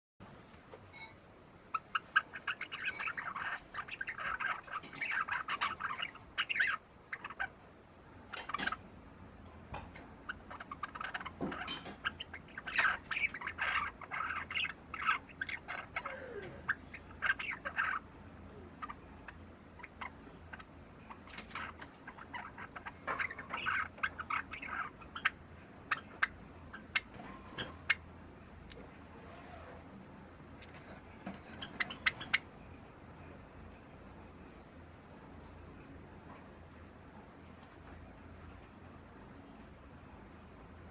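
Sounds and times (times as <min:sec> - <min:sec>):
young sparrow chirps and clicks: 0:01.8 - 0:07.6, 0:08.2 - 0:08.8, 0:09.7 - 0:18.1, 0:18.8 - 0:28.9, 0:30.4 - 0:32.5.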